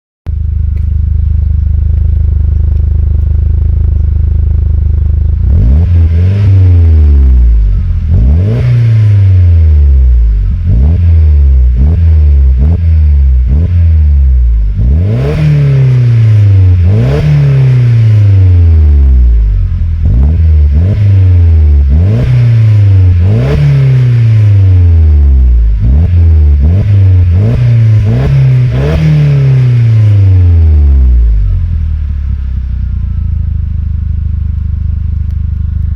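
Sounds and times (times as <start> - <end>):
car engine idling and revving: 0.3 - 35.9.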